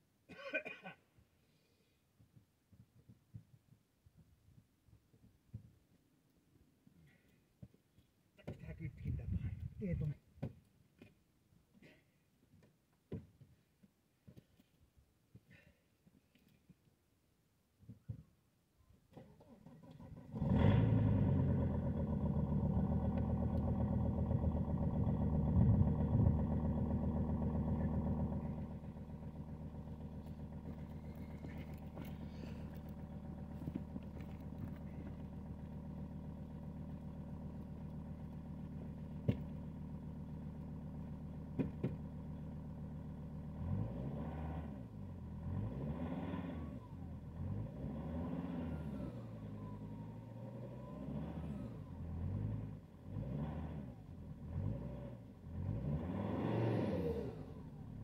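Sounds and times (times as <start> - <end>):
diesel engine starting and idling: 19.3 - 58.0
engine revving: 20.2 - 42.0, 43.4 - 58.0.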